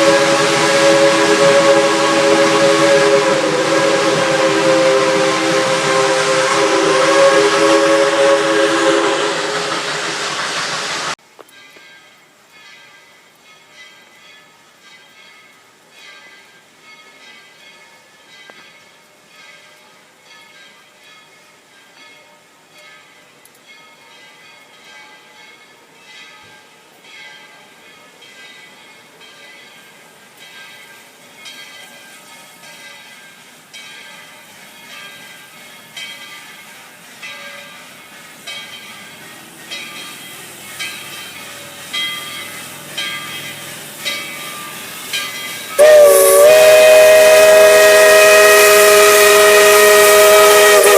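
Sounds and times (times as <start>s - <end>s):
steam hissing: 0.0s - 11.2s, 30.5s - 50.9s
locomotive bell ringing: 11.5s - 50.9s.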